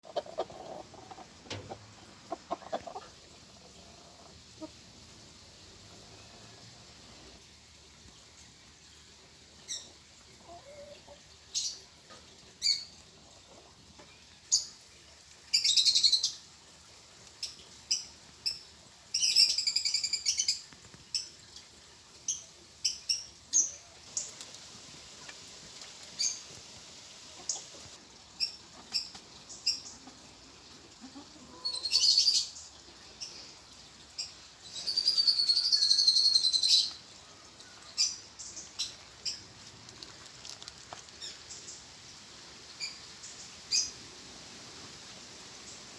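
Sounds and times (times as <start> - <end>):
small birds chirping: 17.2 - 44.1.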